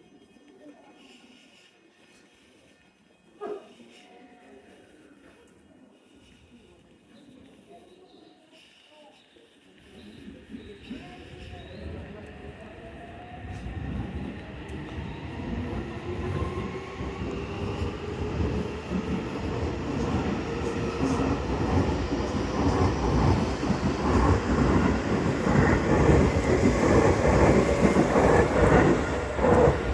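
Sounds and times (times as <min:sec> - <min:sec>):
electric train rumble: 0:10.2 - 0:29.9.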